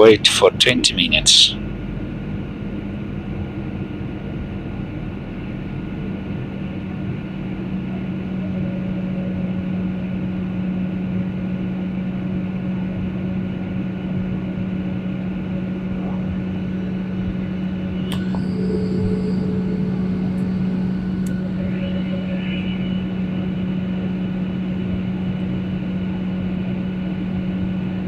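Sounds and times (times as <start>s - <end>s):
airliner cabin engine drone: 0.0s - 28.0s
thin high whine: 7.4s - 28.0s.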